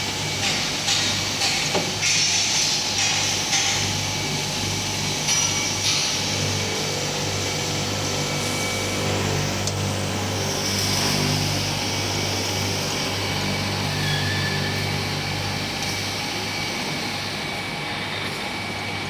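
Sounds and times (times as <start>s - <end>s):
glass grinding machine running: 0.0s - 19.0s.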